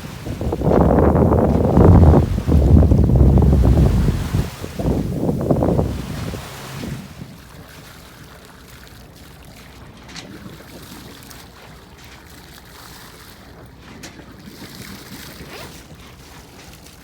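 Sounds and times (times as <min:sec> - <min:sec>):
wind noise: 0:00.0 - 0:07.4
water washing: 0:00.0 - 0:08.0.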